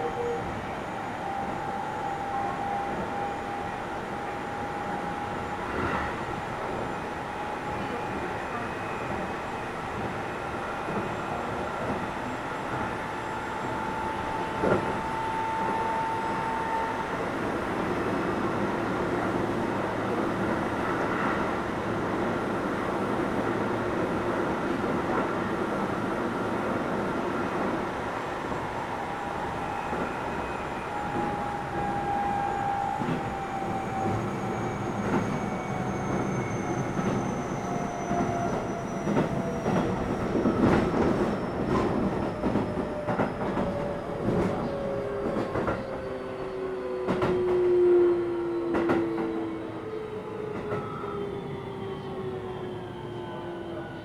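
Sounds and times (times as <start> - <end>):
train wheels rumbling on rail: 0.1 - 54.0.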